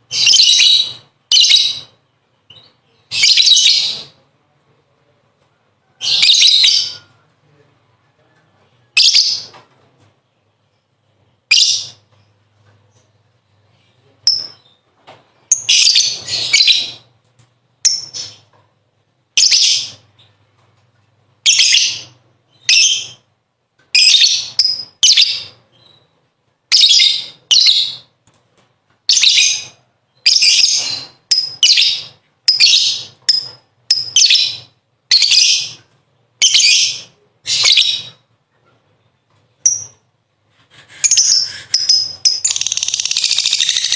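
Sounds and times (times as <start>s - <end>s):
lovebird shrill chatter: 41.0s - 43.9s.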